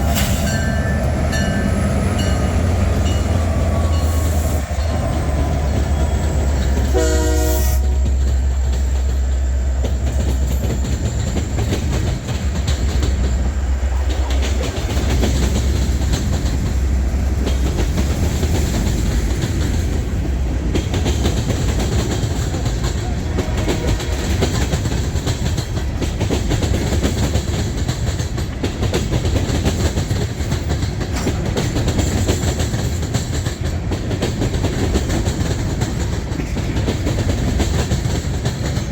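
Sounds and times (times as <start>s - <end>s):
freight train rumbling past: 0.0s - 38.9s
train horn blast: 6.8s - 8.3s, 23.0s - 24.6s
wheel clatter on rails: 7.8s - 38.9s.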